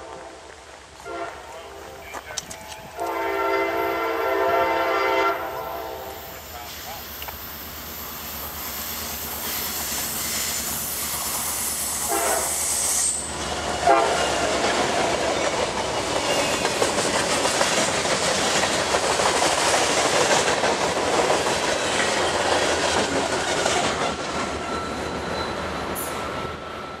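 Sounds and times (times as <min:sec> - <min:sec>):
diesel locomotive horn: 0:00.0 - 0:06.3, 0:12.0 - 0:13.2, 0:13.8 - 0:14.4.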